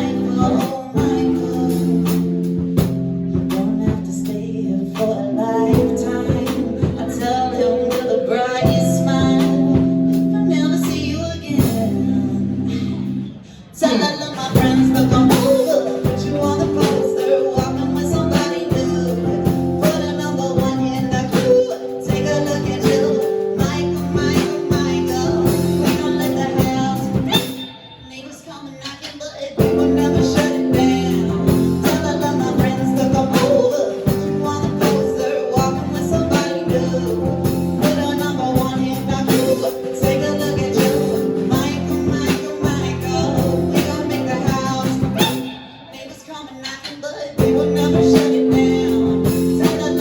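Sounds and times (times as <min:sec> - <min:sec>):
live band playing: 0:00.0 - 0:29.0, 0:29.6 - 0:46.2, 0:46.8 - 0:50.0
guitar: 0:00.0 - 0:50.0
person singing: 0:00.0 - 0:50.0.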